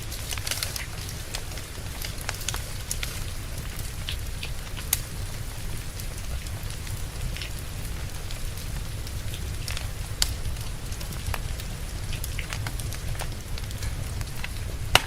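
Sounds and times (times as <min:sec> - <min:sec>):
log fire crackling and popping: 0:00.0 - 0:15.0
rain hissing: 0:00.0 - 0:15.0.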